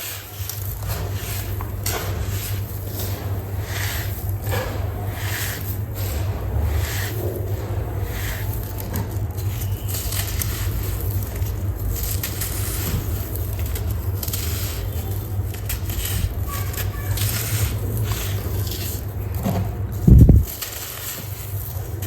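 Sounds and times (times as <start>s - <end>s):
sand-cement clumps crumbling: 0.0s - 22.0s
low rumble: 20.0s - 20.5s.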